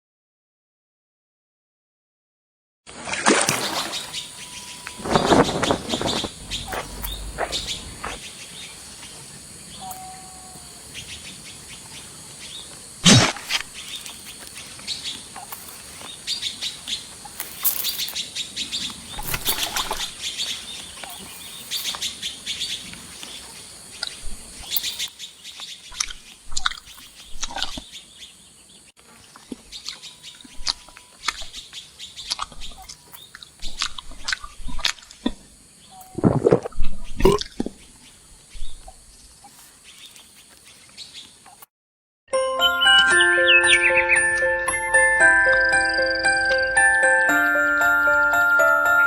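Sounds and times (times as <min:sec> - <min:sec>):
songbirds chirping: 0:03.5 - 0:36.2, 0:37.7 - 0:41.7.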